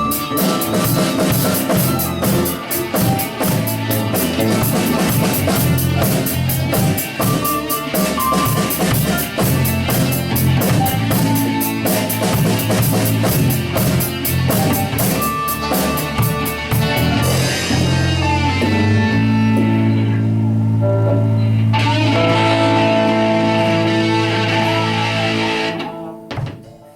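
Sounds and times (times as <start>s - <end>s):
drums and cymbals: 0.0s - 18.4s
rock band playing live: 0.0s - 26.7s
electric guitars: 0.0s - 26.9s.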